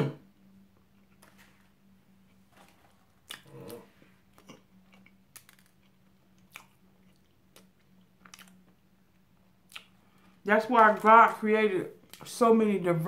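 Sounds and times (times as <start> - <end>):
low steady hum: 0.0 - 13.0
chewing: 3.2 - 8.8, 9.7 - 10.3
wet mouth clicks: 9.7 - 9.9.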